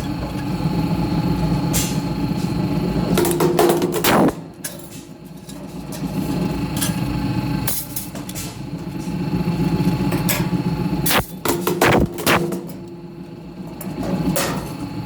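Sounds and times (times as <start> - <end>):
hydraulic press motor hum: 0.0 - 5.4.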